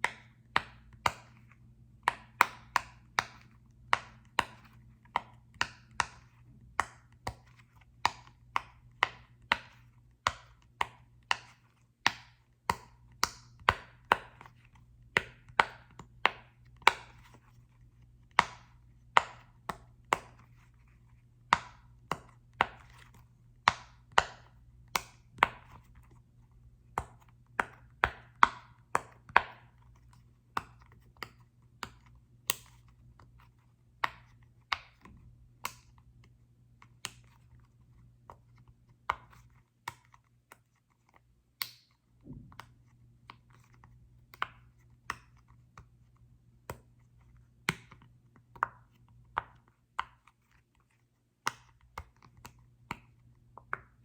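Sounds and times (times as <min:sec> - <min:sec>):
sharp taps on small ball: 0:00.0 - 0:17.5, 0:18.2 - 0:20.7, 0:21.4 - 0:26.1, 0:26.9 - 0:33.4, 0:34.0 - 0:36.1, 0:41.6 - 0:45.9, 0:47.6 - 0:50.3.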